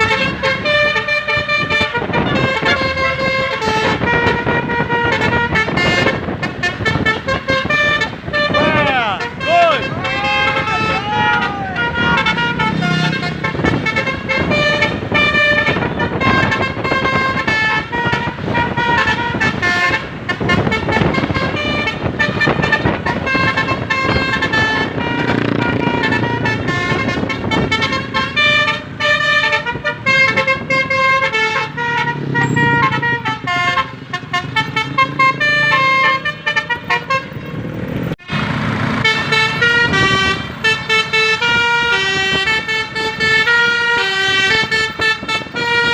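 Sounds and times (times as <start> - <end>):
musical bus horn tune: 0.0 - 37.6, 38.2 - 45.9
vehicle noise: 0.0 - 45.9.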